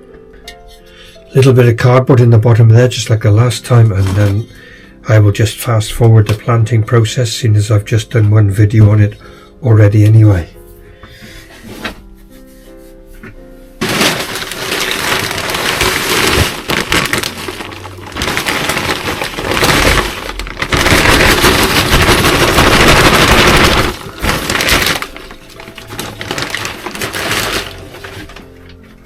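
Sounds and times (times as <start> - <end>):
compost crackling rustle: 13.8 - 29.0.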